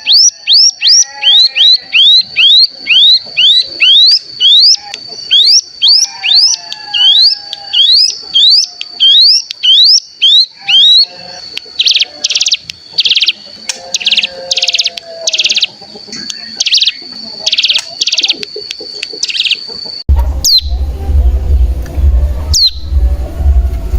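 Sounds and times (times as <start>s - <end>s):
bird singing whistled notes: 0.0s - 18.5s, 20.4s - 20.8s, 22.5s - 23.0s
steady low hum: 20.0s - 23.9s.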